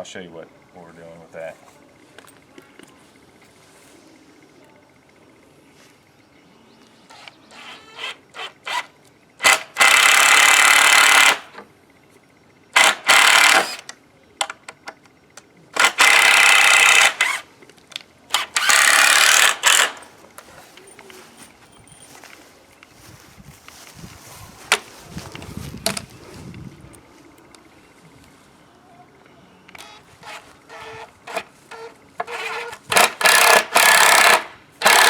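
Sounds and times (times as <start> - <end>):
power drill driving into wood: 7.1 - 11.5, 12.8 - 13.8, 15.8 - 17.4, 18.3 - 20.0, 29.8 - 35.0
handling knocks and clicks: 24.6 - 26.6.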